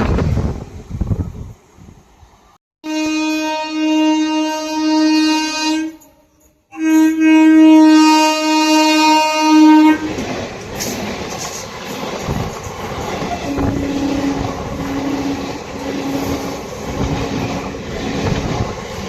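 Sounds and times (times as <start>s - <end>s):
train rumbling past: 0.0s - 6.0s, 6.8s - 19.0s
locomotive air horn blasts: 2.8s - 10.1s, 13.5s - 17.8s.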